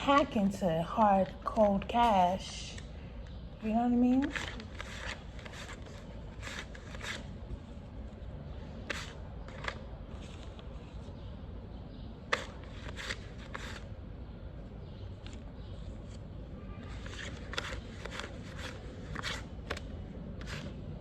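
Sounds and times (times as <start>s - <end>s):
paper banknotes rustling: 3.9s - 11.3s, 12.2s - 14.1s, 15.0s - 21.0s.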